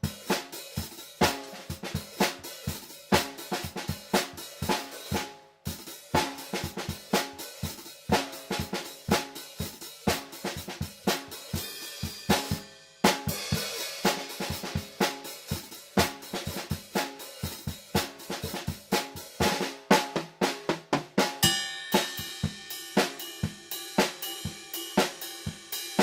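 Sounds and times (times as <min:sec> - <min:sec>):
drum kit playing: 0:00.0 - 0:26.0
ringing cymbal wash: 0:21.4 - 0:26.0.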